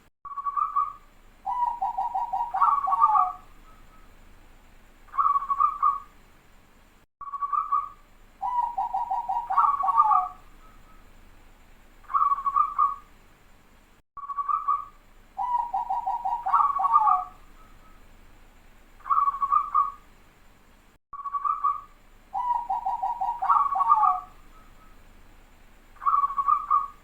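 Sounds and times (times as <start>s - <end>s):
dove cooing: 1.5s - 3.5s, 5.1s - 6.1s, 8.4s - 10.4s, 12.1s - 13.0s, 15.4s - 17.4s, 19.0s - 20.0s, 21.4s - 24.6s, 26.0s - 27.0s.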